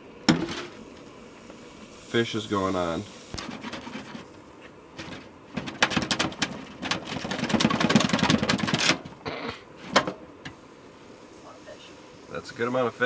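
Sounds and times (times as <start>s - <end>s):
fish sizzling in a hot pan: 0.8s - 3.4s.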